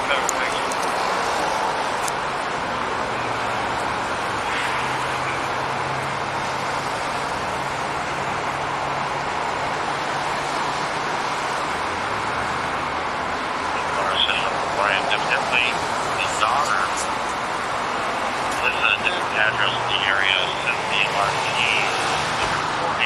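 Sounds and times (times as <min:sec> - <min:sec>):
highway traffic rushing hiss: 0:00.0 - 0:23.0.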